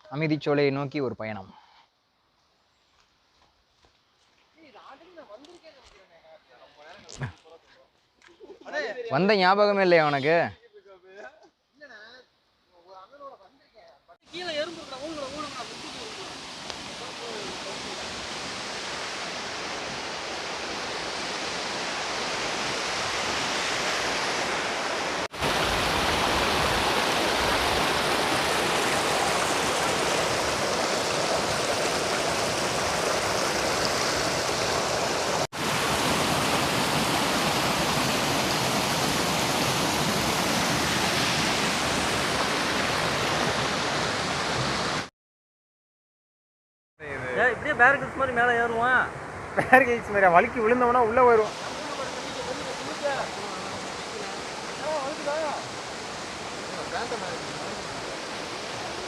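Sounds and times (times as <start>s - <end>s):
waterfall rushing: 14.3s - 45.1s, 49.9s - 59.0s.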